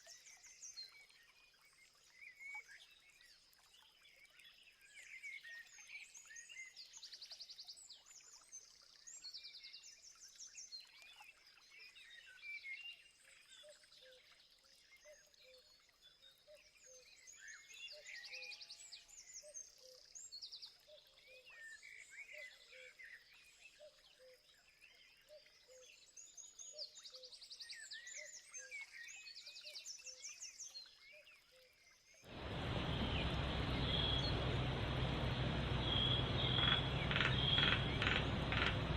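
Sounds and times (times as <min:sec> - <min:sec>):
wild birds chirping and trilling: 0:32.2 - 0:38.9
loud steady hiss: 0:32.3 - 0:38.9.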